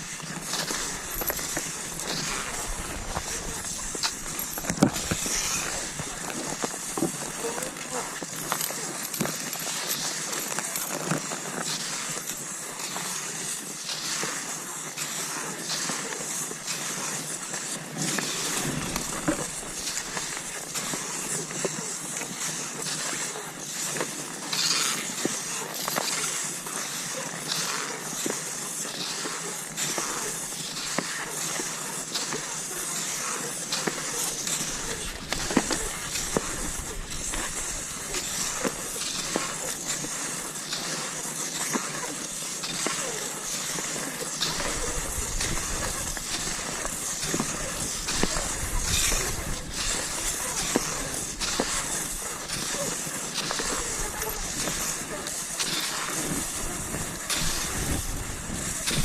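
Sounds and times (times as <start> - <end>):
poles crunching in snow: 0.0 - 59.0
skis swishing over snow: 0.0 - 59.0.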